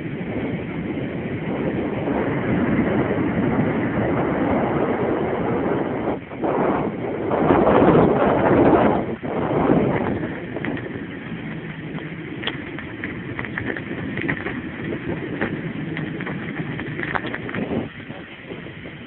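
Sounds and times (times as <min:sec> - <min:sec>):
bicycle tyre noise: 0:00.0 - 0:19.0
wind on microphone: 0:00.0 - 0:19.0
bike clicks and rattles: 0:08.0 - 0:19.0.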